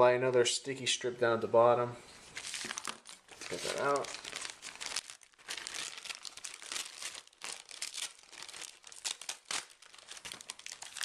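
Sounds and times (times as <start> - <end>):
crinkling handling noise: 2.2 - 11.0.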